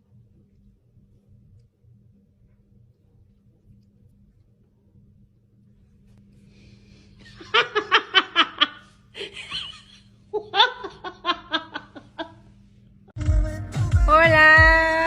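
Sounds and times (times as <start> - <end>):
faint steady hum: 0.0 - 13.2
person laughing: 7.2 - 12.4.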